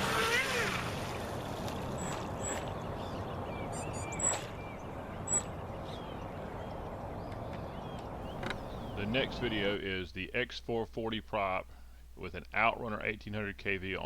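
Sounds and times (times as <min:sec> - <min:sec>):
outdoor background noise: 0:00.0 - 0:14.0
small birds chirping: 0:01.7 - 0:09.8.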